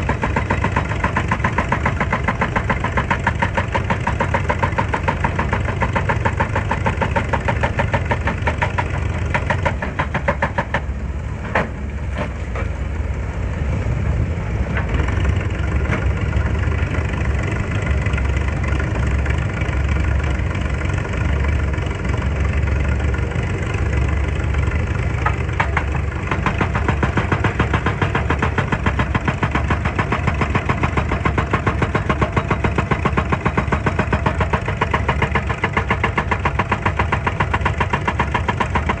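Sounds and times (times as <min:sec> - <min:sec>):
sharp knocks: 0:00.0 - 0:10.9
excavator diesel engine throbbing: 0:00.0 - 0:39.0.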